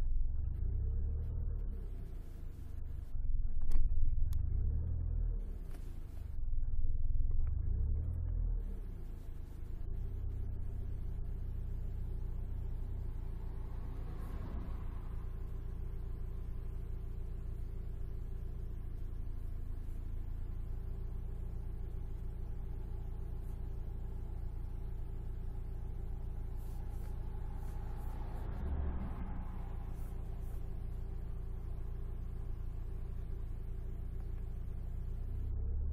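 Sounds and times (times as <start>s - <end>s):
car engine and road noise drone: 0.0s - 35.9s.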